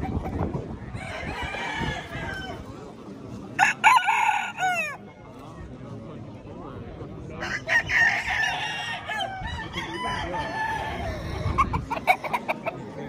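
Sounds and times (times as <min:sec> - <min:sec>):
roosters crowing: 0:00.9 - 0:02.7, 0:03.6 - 0:05.0, 0:07.4 - 0:12.4.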